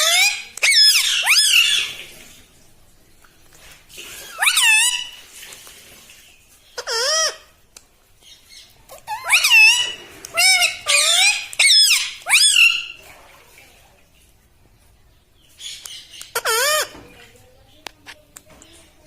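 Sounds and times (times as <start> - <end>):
parrot warbling squawks: 0.0 - 2.0, 4.2 - 5.2, 6.8 - 7.6, 8.9 - 13.0, 16.2 - 17.0.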